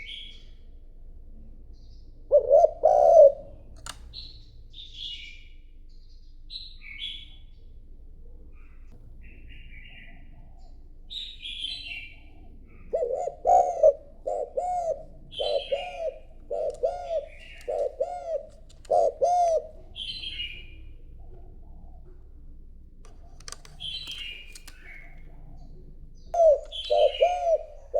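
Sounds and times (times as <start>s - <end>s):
dove cooing: 2.2s - 4.0s, 8.5s - 22.2s, 23.0s - 27.9s
small bird chirps: 3.8s - 7.7s, 8.6s - 13.1s, 15.3s - 21.0s, 23.1s - 27.9s.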